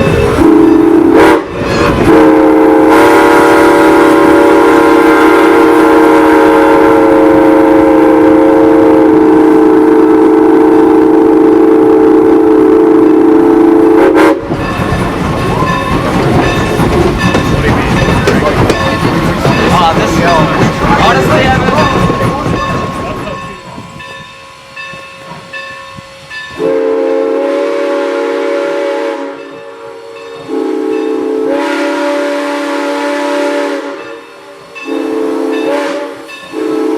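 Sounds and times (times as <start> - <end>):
steam locomotive whistle: 0.0 - 14.7, 25.6 - 36.9
train rumbling along rails: 0.0 - 36.9.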